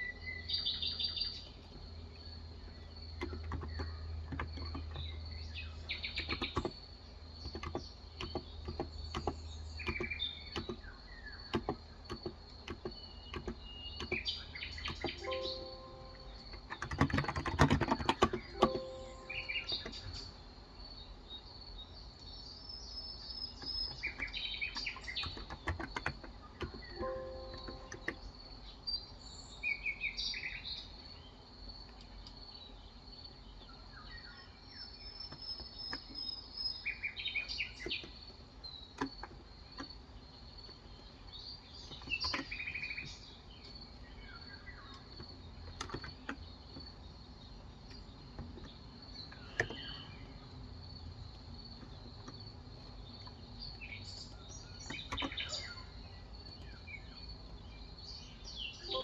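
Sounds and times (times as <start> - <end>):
birds chirping: 0.0 - 59.0
sharp clicks: 3.1 - 5.2, 5.9 - 20.3, 23.6 - 28.2, 51.3 - 56.9
high-pitched background tone: 15.2 - 16.7, 18.5 - 20.1, 27.0 - 28.2.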